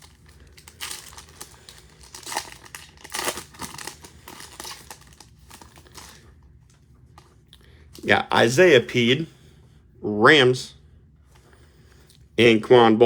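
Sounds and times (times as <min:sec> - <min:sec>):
wrapper crinkling and ripping: 0:00.0 - 0:06.4.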